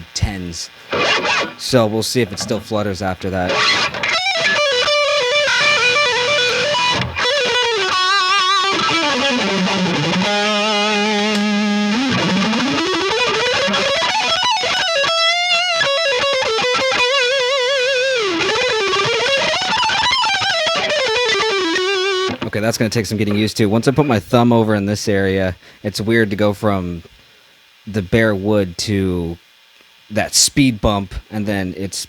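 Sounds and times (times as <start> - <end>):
electric guitar with tremolo vibrato: 0.8 - 2.8, 3.4 - 22.4.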